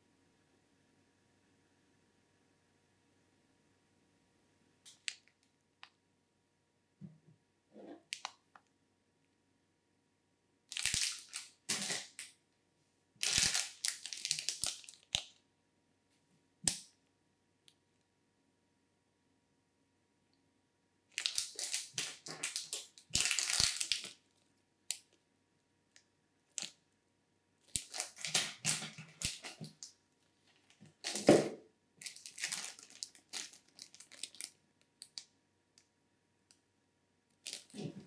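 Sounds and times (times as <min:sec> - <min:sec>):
plastic packaging crinkling: 0:10.7 - 0:12.2, 0:13.2 - 0:15.2, 0:21.2 - 0:24.2, 0:27.7 - 0:29.9, 0:30.9 - 0:31.4, 0:32.0 - 0:35.2, 0:37.4 - 0:38.0.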